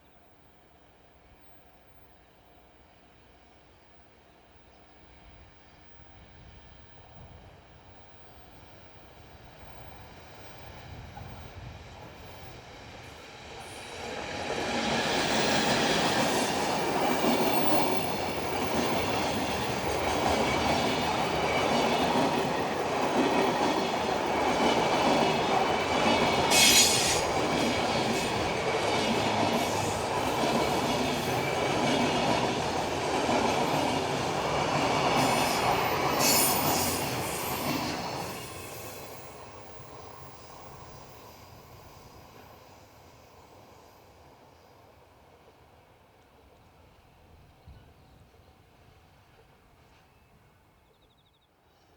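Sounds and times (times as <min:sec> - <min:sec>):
freight train wheels clacking: 0:12.0 - 0:39.9.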